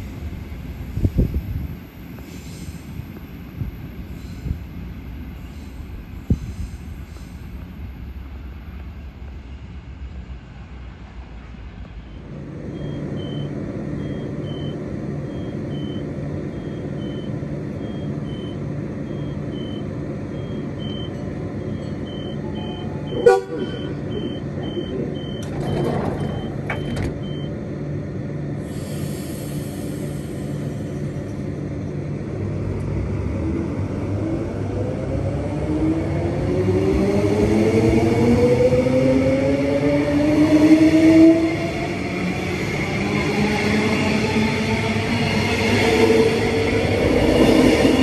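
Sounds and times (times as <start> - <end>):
train steady hum: 0.0 - 48.0
high beeping: 16.6 - 27.5
train horn toot: 23.1 - 24.0.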